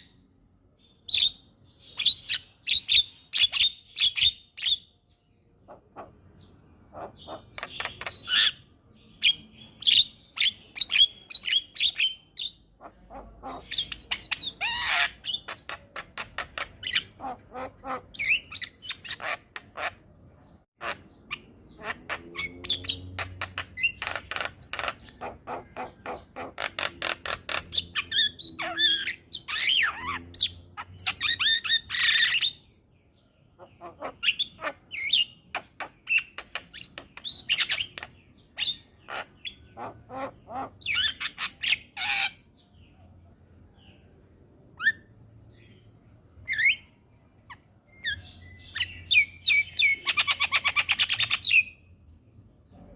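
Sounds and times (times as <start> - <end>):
bird chattering calls: 5.7 - 20.0, 20.8 - 32.6, 33.6 - 42.5, 47.5 - 51.8.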